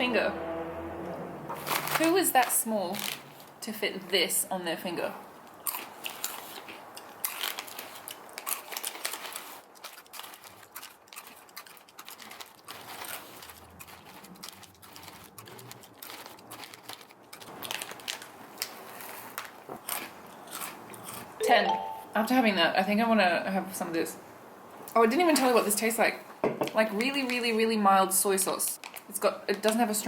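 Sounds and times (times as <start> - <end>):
chewing crunchy snacks: 5.4 - 21.4.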